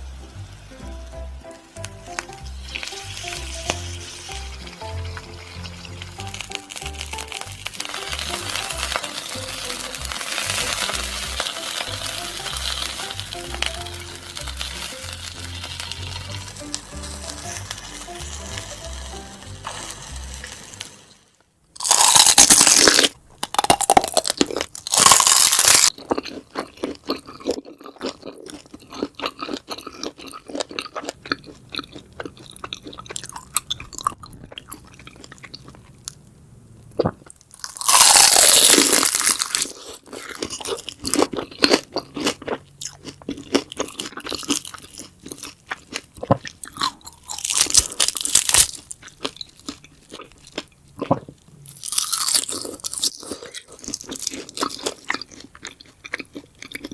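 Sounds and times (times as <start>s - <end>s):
crunching and chewing food: 1.8s - 20.6s, 21.8s - 36.2s, 36.8s - 56.9s.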